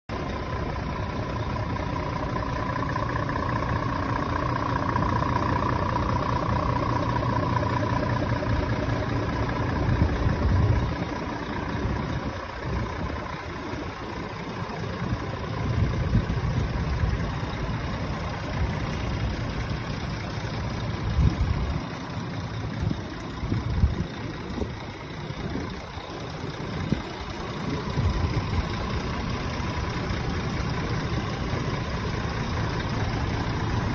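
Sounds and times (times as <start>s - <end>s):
diesel truck engine idling: 0.1s - 33.9s.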